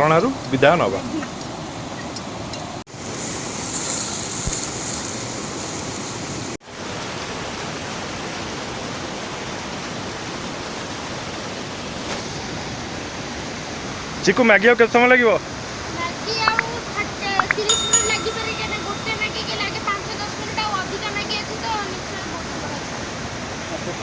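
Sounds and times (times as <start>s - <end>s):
waterfall roaring: 6.7s - 24.0s.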